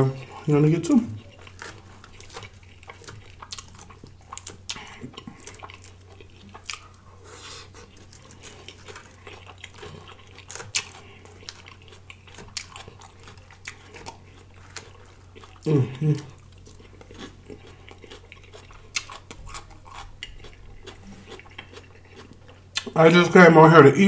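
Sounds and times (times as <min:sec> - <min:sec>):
person chewing food: 0:00.0 - 0:23.0
low steady hum: 0:00.0 - 0:24.0.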